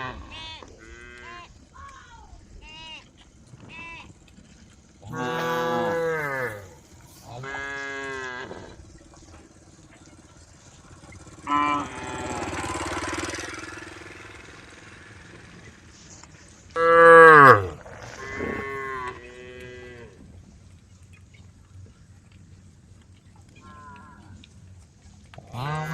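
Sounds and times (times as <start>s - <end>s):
cows mooing: 5.0s - 9.2s, 11.1s - 13.8s, 16.7s - 20.3s, 25.4s - 25.9s.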